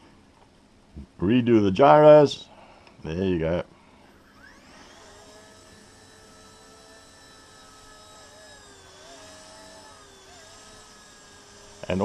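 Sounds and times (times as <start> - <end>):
electric motor whine: 4.1 - 12.0.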